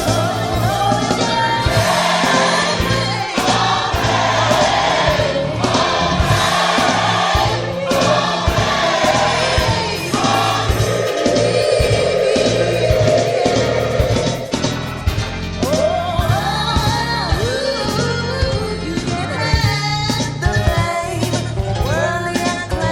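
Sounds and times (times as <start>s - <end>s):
gospel choir singing: 0.0s - 18.0s
band with steady drum beat: 0.0s - 22.9s.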